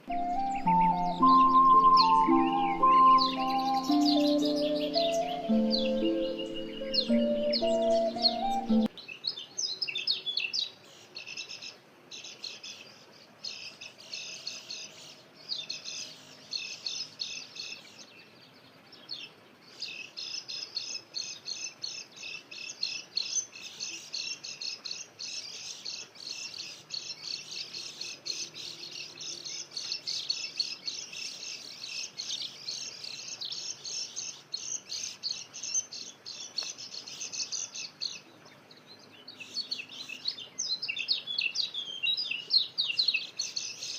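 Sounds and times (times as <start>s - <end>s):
birds twittering: 0.0s - 12.8s.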